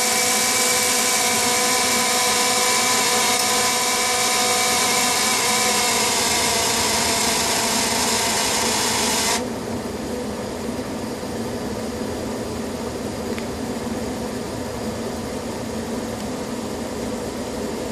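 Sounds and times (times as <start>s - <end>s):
furnace drone: 0.0s - 17.9s.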